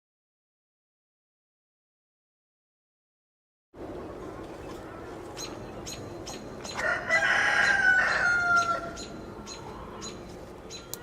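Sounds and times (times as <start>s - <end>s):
rooster crowing: 6.8s - 9.1s.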